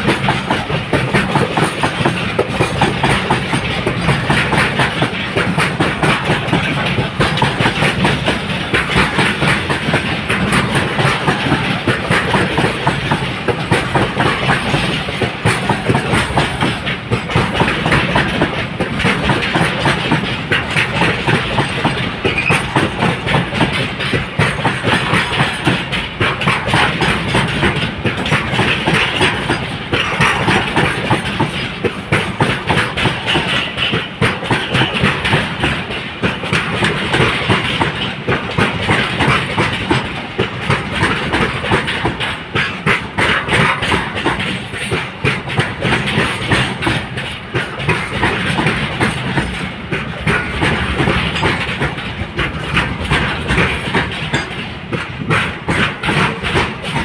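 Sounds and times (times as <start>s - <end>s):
train rumble: 0.0s - 57.0s
train wheels clattering on rails: 0.0s - 57.0s.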